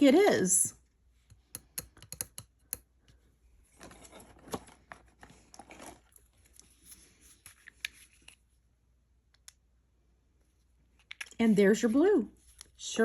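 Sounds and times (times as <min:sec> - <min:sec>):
tools clicking on tabletop: 0:01.6 - 0:02.8.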